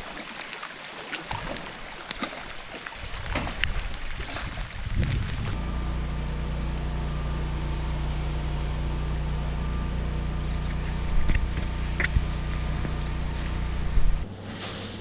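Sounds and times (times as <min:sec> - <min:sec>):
engine running steadily: 0:05.1 - 0:15.0.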